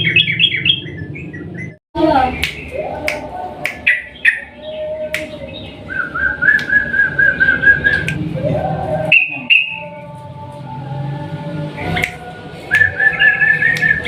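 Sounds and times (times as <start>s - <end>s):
bird singing whistled phrases: 9.1s - 9.9s.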